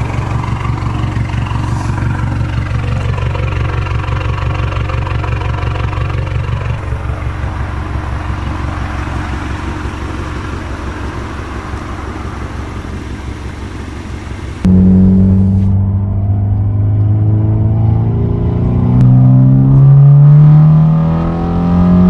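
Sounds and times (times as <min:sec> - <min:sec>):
car engine at low revs: 0:00.0 - 0:22.0.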